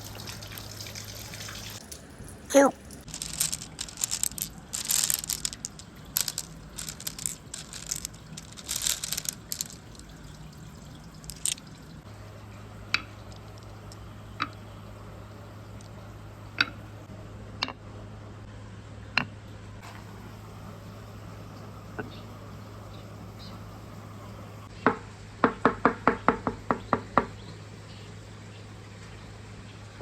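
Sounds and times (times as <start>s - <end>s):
water splashing and trickling: 0.0s - 17.0s
low steady hum: 0.0s - 25.3s.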